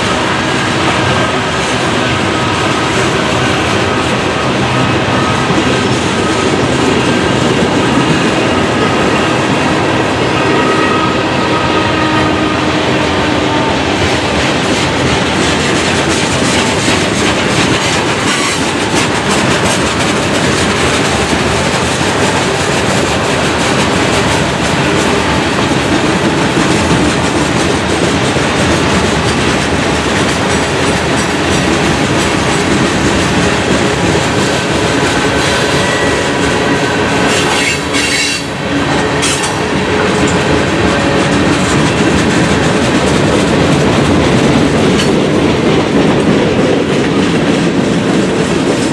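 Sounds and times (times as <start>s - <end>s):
clickety-clack over rail joints: 0.0s - 48.9s
train wheels on rails: 0.0s - 48.9s.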